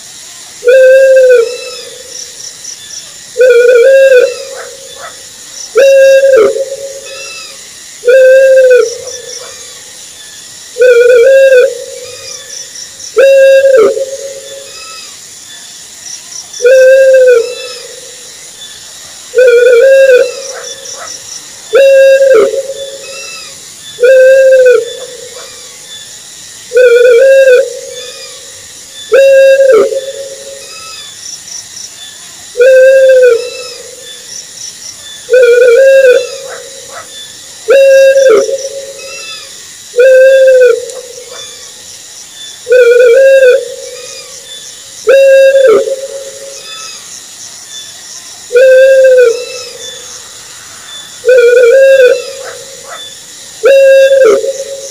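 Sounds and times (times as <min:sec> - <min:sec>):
faint steady hiss: 0:00.0 - 0:54.9
owl hooting: 0:00.6 - 0:02.1, 0:03.4 - 0:09.8, 0:10.8 - 0:15.2, 0:16.6 - 0:18.2, 0:19.3 - 0:25.8, 0:26.7 - 0:31.1, 0:32.6 - 0:34.2, 0:35.3 - 0:41.8, 0:42.6 - 0:44.4, 0:45.0 - 0:47.0, 0:48.5 - 0:50.2, 0:51.2 - 0:54.9.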